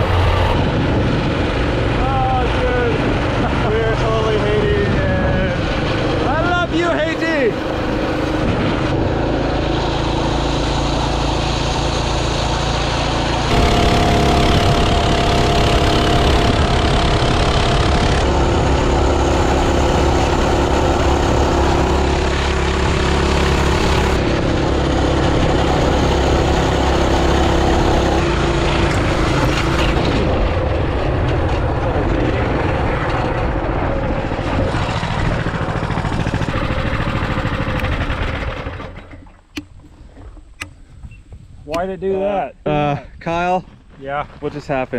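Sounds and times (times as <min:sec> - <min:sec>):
mini bike engine running: 0:07.4 - 0:30.5, 0:31.2 - 0:39.2.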